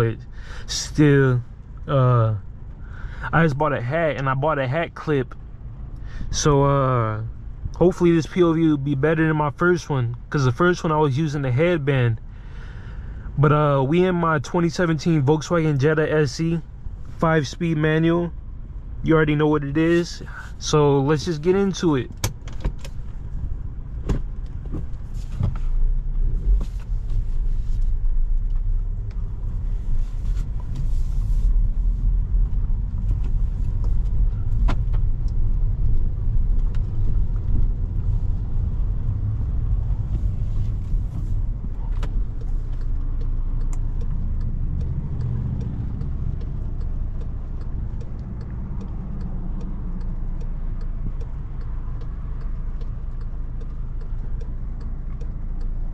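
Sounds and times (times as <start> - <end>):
car engine and road rumble: 0.0 - 55.9
faint regular ticking: 31.6 - 55.9
scattered clicks: 38.6 - 55.9.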